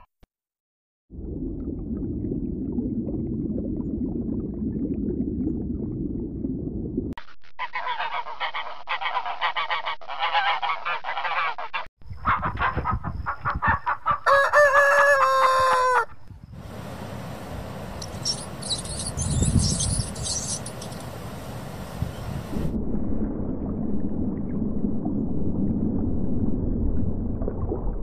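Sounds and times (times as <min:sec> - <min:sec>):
low rumble: 0:01.1 - 0:07.2, 0:22.5 - 0:28.0
chickens calling: 0:12.3 - 0:16.1, 0:17.9 - 0:21.3
rooster crowing: 0:14.2 - 0:16.2.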